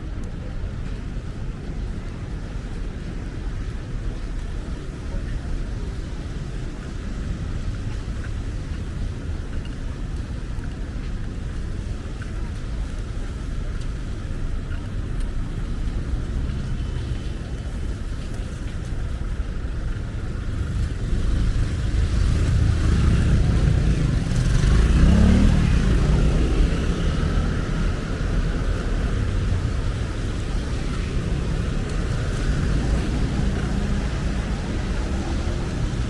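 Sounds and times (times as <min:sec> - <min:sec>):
street traffic rumble: 0:00.0 - 0:36.0
vehicle engine passing: 0:21.6 - 0:36.0.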